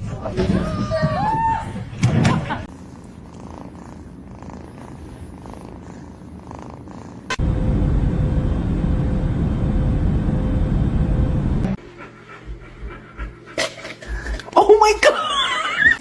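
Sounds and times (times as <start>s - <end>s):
cat purring: 2.7s - 7.4s.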